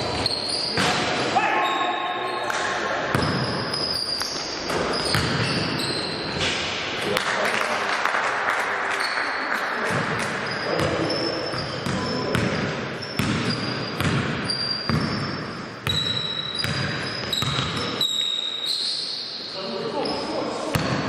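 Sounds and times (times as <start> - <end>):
sneaker squeaks: 0.0 - 6.5, 9.0 - 21.0
basketball bouncing on court: 3.1 - 6.4, 9.9 - 18.0, 20.7 - 21.0.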